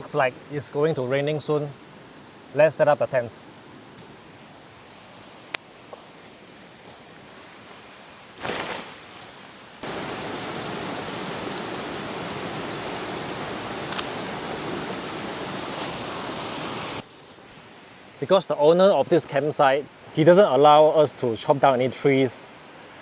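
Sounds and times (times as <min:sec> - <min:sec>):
river flowing: 0:03.4 - 0:18.2
brief rustle: 0:06.0 - 0:09.8.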